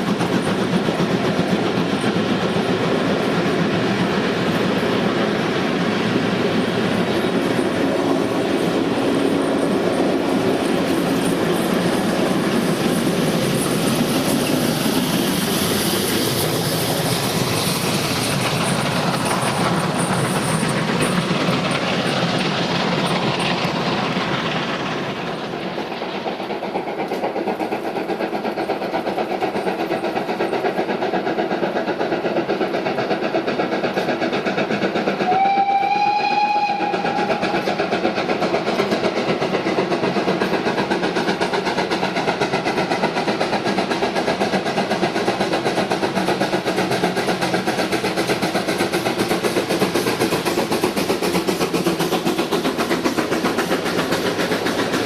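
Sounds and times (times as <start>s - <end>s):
train running rhythmically: 0.0s - 55.0s
train whistle blast: 35.2s - 37.6s.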